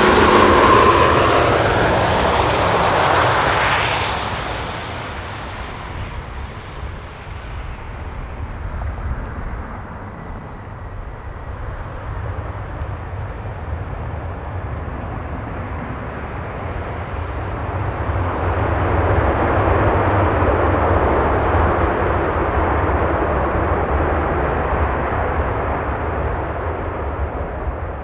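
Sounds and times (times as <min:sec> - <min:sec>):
aircraft engine rushing: 0:00.0 - 0:28.0.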